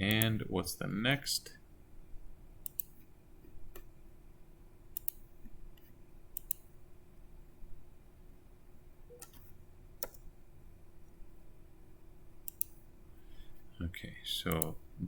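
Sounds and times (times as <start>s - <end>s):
faint steady hum: 0.0s - 15.0s
computer mouse clicks: 2.6s - 3.1s, 5.0s - 6.7s, 9.1s - 10.3s, 12.4s - 12.8s, 14.5s - 14.8s.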